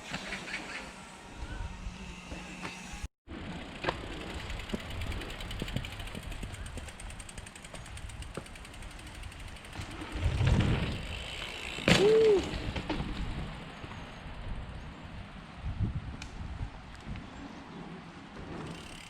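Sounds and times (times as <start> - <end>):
bike tyres rolling on dirt: 3.3 - 19.0
freewheel clicking: 3.4 - 11.9, 18.6 - 19.0.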